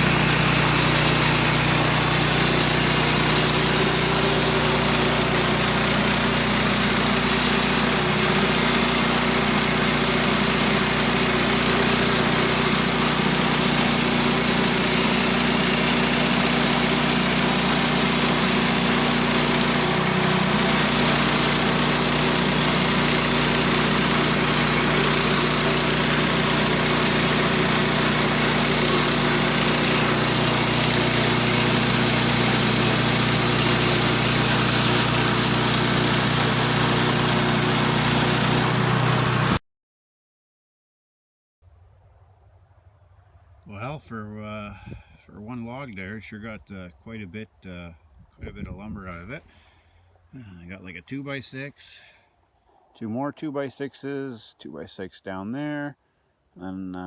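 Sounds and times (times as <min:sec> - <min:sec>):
band saw blade cutting log: 0:00.0 - 0:39.6
small gas engine running: 0:00.0 - 0:39.6.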